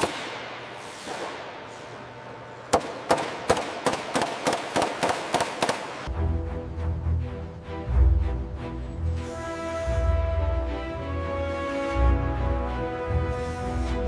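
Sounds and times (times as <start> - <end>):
sharp echoing bangs: 0.0 - 1.8, 2.7 - 6.1.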